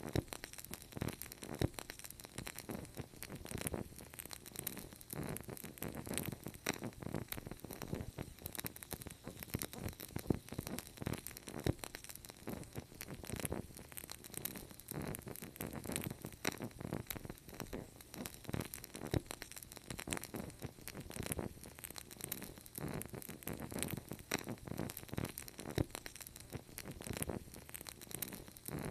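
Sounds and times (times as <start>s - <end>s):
fire crackling and popping: 0.0s - 28.9s
soft hiss of fire: 0.0s - 28.9s.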